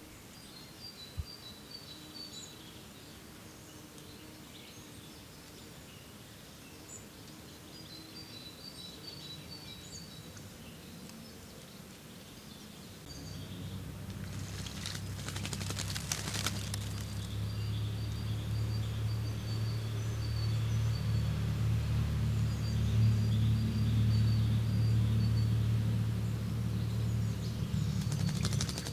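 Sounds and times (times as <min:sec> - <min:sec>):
songbirds chirping: 0:00.0 - 0:28.9
low steady hum: 0:13.1 - 0:28.9
crackling rustle: 0:13.8 - 0:17.6.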